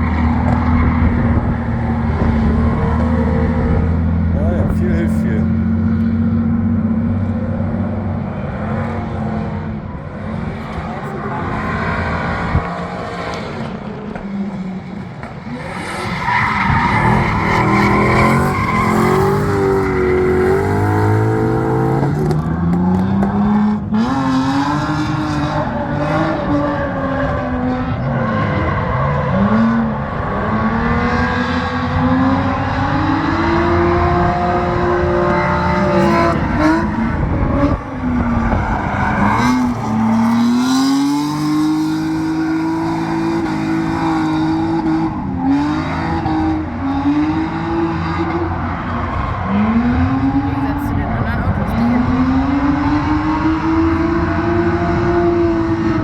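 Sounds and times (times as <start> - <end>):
car engine revving hard: 0.0 - 56.0
tyre squeal: 15.5 - 22.0.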